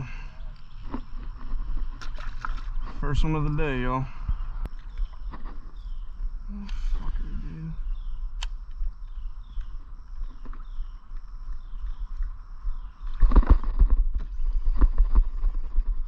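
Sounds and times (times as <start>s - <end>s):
water splashing: 1.9s - 3.6s
bird chirping: 3.0s - 13.6s.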